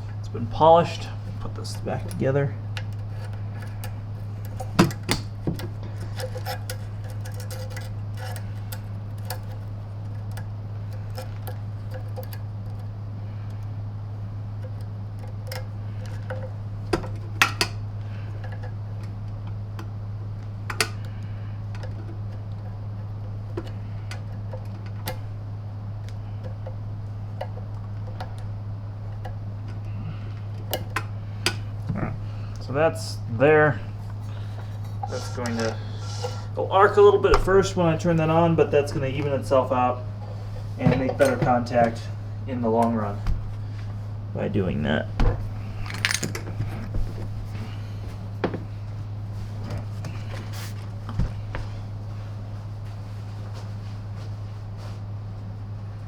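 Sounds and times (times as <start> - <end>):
steady low hum: 0.0 - 56.0
small parts clicking and clinking: 2.8 - 12.9, 45.8 - 46.5.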